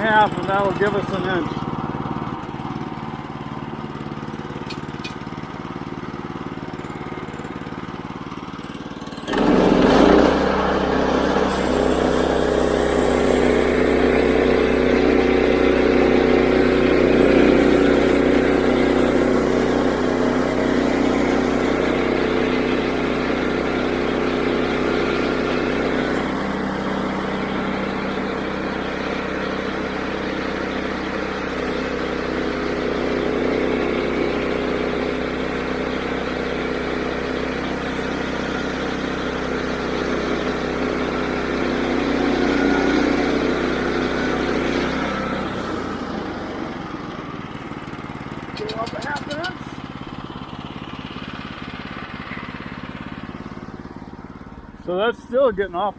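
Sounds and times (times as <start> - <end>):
band saw blade cutting log: 0.0 - 1.8, 9.2 - 46.3, 48.5 - 50.0
sawmill engine running under load: 0.0 - 55.9.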